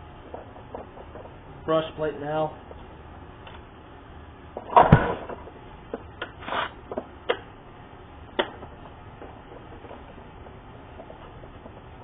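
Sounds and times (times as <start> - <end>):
brief scrape: 6.4 - 6.8.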